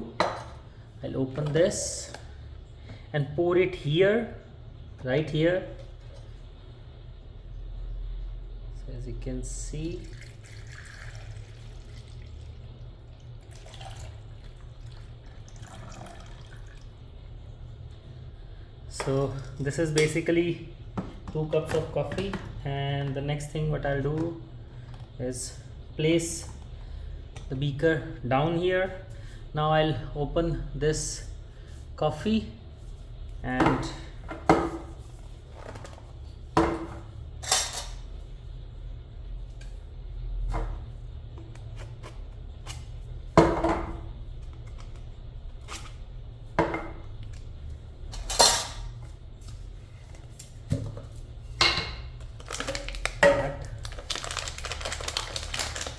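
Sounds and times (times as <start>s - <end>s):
steady low hum: 0.0s - 54.2s
water pouring and trickling: 10.0s - 17.0s.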